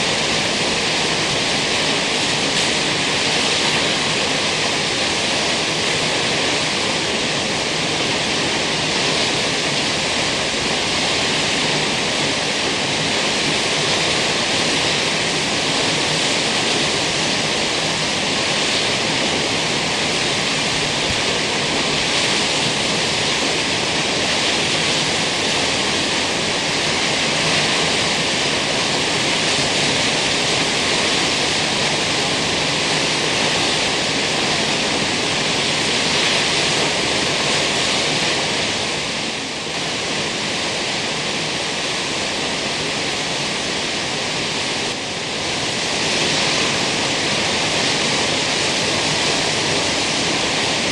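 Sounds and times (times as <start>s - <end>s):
waterfall roaring: 0.0s - 50.9s.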